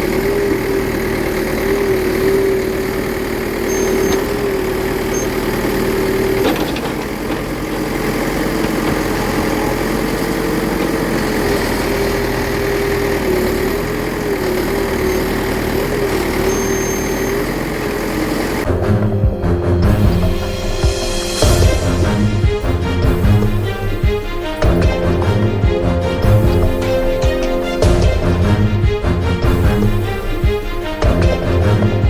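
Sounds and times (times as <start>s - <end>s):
small electric motor whining: 0.0s - 18.7s.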